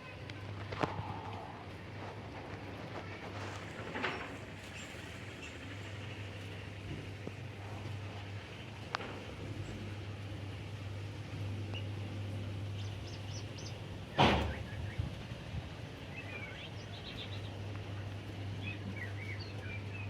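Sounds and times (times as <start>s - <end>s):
small birds chirping: 12.6s - 15.2s, 16.0s - 20.0s.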